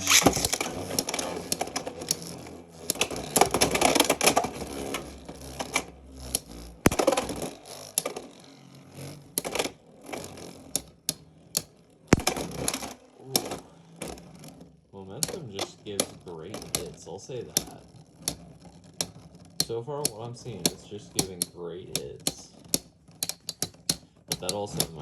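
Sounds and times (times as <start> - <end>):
spinning tops clacking together: 0.0 - 25.0
spinning tops whirring: 0.0 - 25.0.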